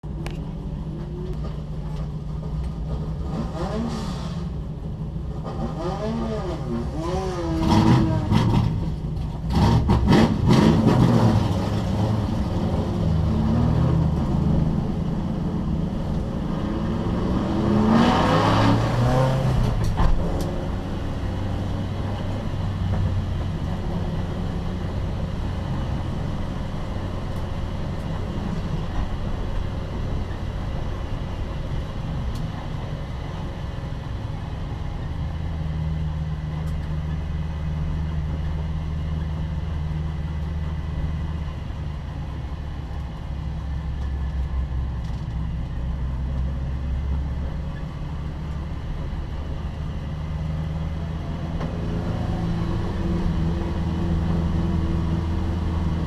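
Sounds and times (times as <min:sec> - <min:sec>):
race cars revving and passing: 0:09.5 - 0:23.0
low engine drone: 0:11.4 - 0:56.0.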